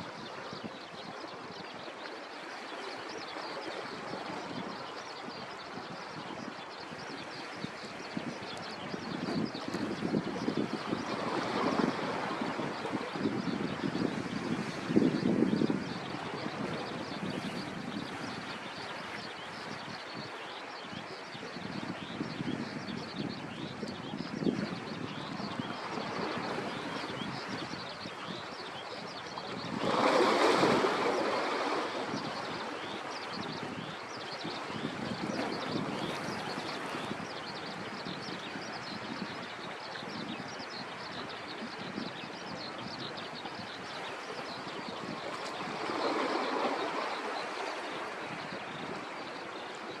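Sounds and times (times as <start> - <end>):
sea waves washing on shore: 0.0 - 50.0
wind noise: 3.7 - 50.0
sea waves breaking: 25.5 - 37.4, 43.6 - 50.0.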